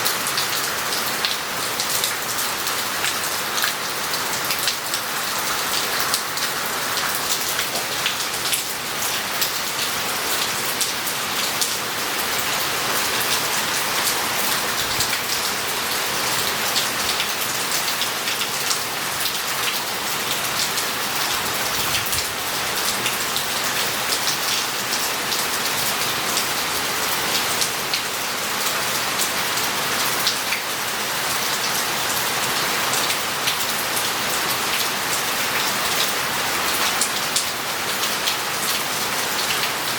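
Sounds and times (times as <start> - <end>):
heavy rain on roof tiles: 0.0 - 39.9.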